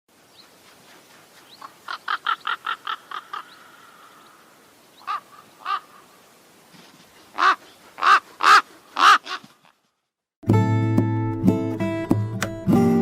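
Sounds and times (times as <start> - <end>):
bird cawing: 1.6 - 6.3, 7.3 - 9.8.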